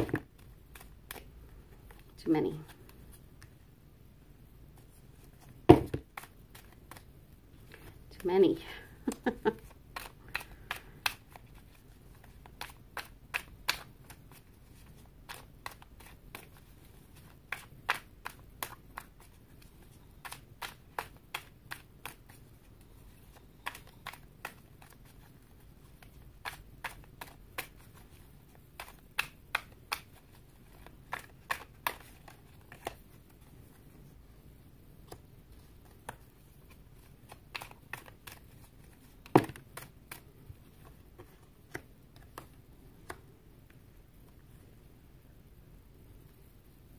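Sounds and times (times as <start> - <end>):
cards being shuffled: 0.0 - 3.6, 4.7 - 34.2, 35.0 - 44.5.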